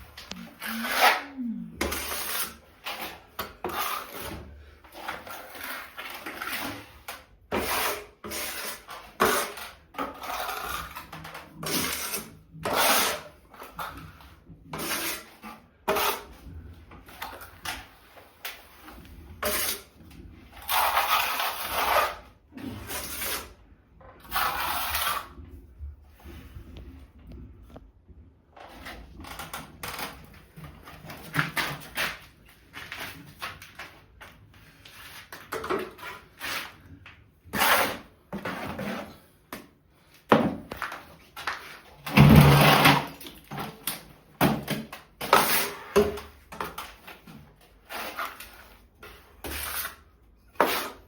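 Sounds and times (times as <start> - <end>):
hand tool scraping: 0.1 - 23.6, 34.8 - 39.7.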